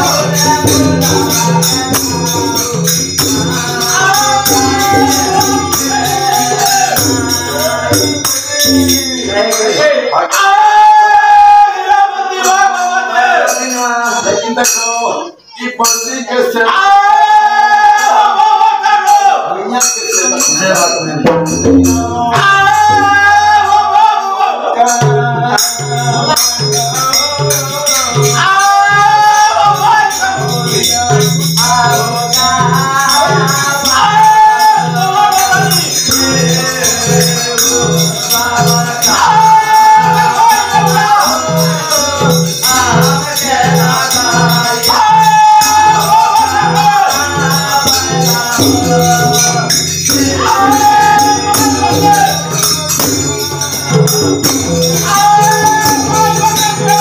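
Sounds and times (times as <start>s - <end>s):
hand drum beat: 0.0s - 9.3s, 21.2s - 23.3s, 25.0s - 57.0s
jangling hand cymbals: 0.0s - 10.5s, 12.3s - 16.6s, 19.0s - 23.8s, 24.9s - 57.0s
man singing devotional song: 0.0s - 57.0s.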